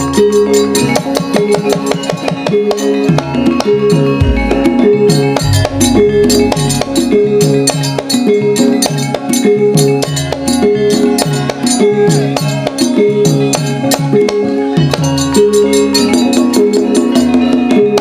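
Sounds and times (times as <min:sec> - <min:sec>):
struck metal keys melody: 0:00.0 - 0:18.0
sharp drum strokes: 0:00.3 - 0:09.2.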